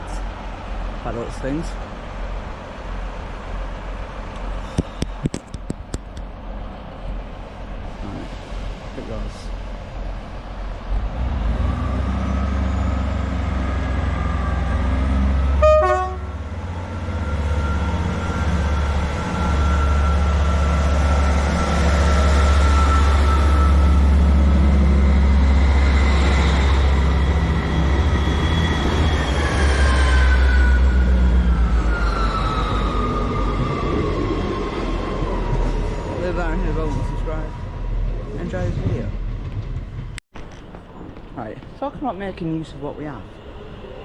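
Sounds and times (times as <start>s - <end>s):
diesel train engine rumbling: 0.0s - 44.0s
train horn toot: 15.5s - 16.4s.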